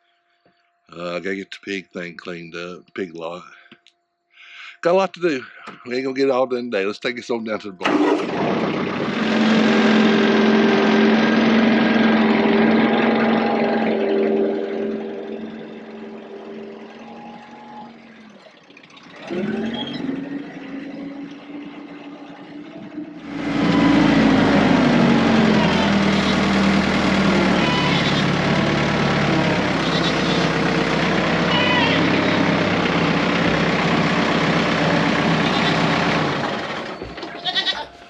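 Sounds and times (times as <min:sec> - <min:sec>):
diesel tractor engine running: 0:07.8 - 0:38.0.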